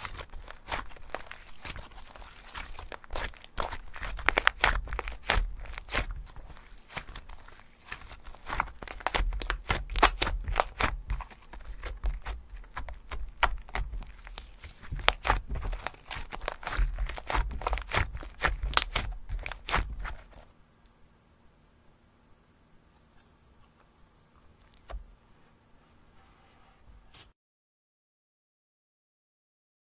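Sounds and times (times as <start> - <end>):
slime squished by hand: 0.0 - 20.4.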